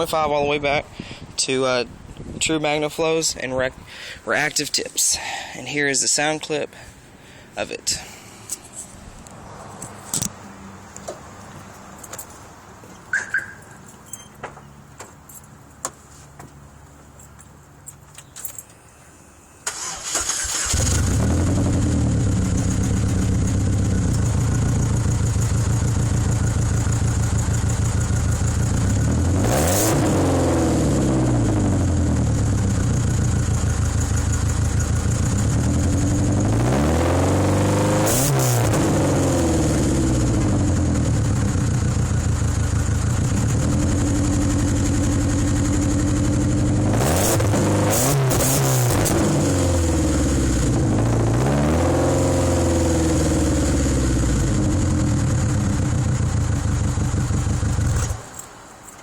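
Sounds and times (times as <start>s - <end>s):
car engine starting and idling: 16.5s - 59.0s
car engine revving: 19.7s - 58.2s.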